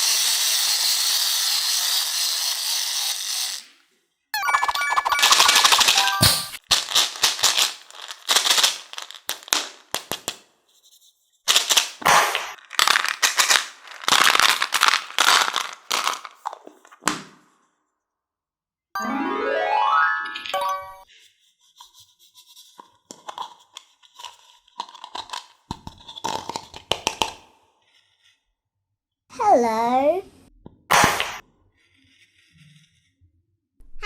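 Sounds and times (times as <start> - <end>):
cartoon clattering bursts: 4.4 - 6.6
rising stepped musical tone: 19.0 - 21.0.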